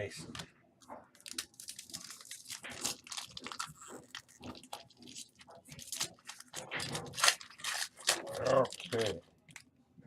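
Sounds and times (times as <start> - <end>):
crinkling of pack wrappers: 1.1 - 9.7.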